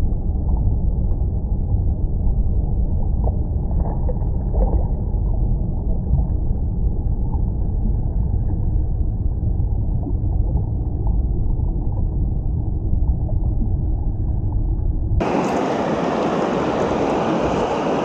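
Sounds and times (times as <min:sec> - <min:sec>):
stream water rushing: 0:15.2 - 0:18.0.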